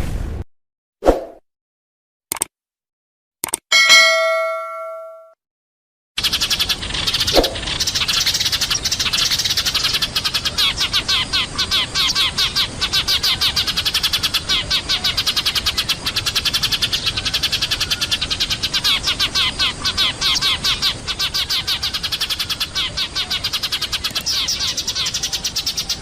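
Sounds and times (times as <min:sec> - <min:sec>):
flock of sparrows chirping: 0:06.2 - 0:26.0.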